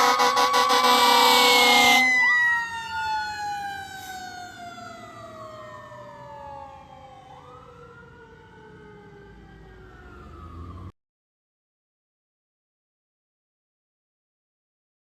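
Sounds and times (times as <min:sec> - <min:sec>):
fire truck siren winding down: 0:00.0 - 0:11.0
wailing siren: 0:00.0 - 0:11.0.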